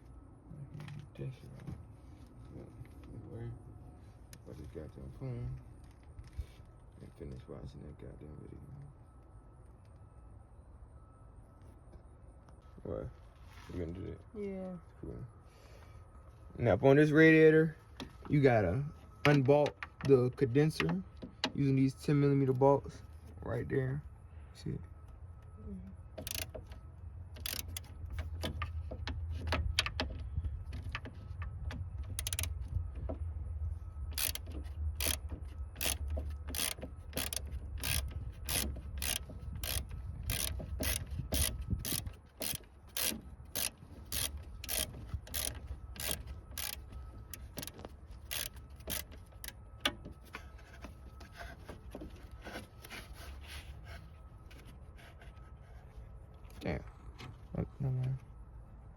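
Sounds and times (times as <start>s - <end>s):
ratchet wrench clicking: 26.2s - 26.7s, 27.4s - 28.6s, 32.2s - 32.5s, 34.1s - 49.6s.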